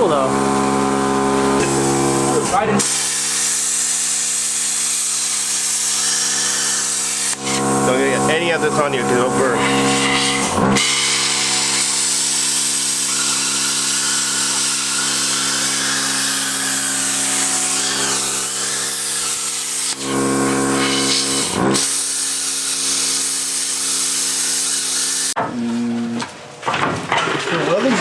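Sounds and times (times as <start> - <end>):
machine electrical hum: 0.0 - 4.3, 5.7 - 21.9
plasma cutter hissing: 0.0 - 25.4.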